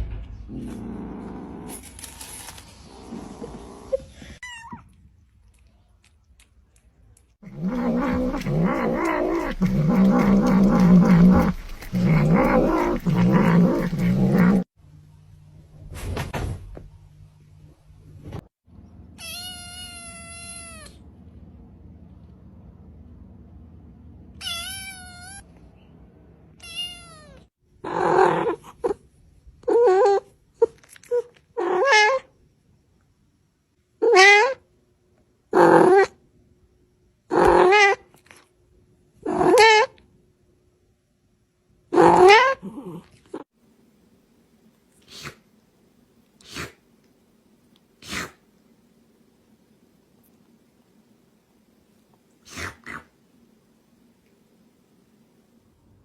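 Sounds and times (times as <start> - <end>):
cat crying: 34.0 - 34.6, 37.4 - 38.0
cat yowling: 34.0 - 34.6, 37.4 - 38.0.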